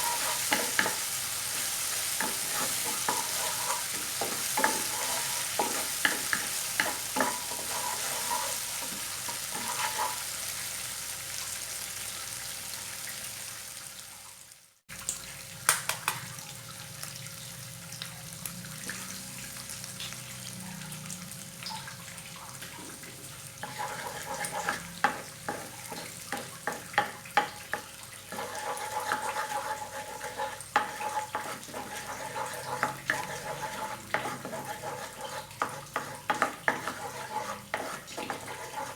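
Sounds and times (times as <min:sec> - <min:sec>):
spatula clicking and scraping pan: 0:00.0 - 0:10.3, 0:23.6 - 0:38.9
food sizzling in a pan: 0:00.0 - 0:38.9.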